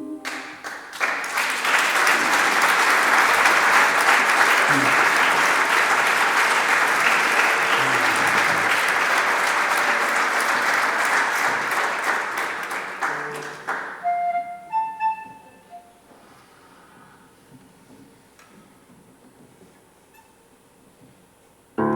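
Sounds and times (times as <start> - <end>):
short pitched notes: 0.0 - 0.6
audience applauding: 0.2 - 14.4.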